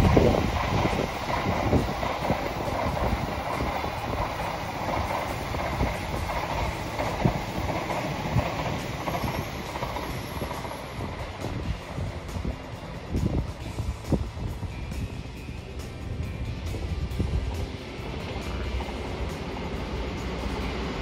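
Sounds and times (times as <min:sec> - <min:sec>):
train running past: 0:00.0 - 0:21.0.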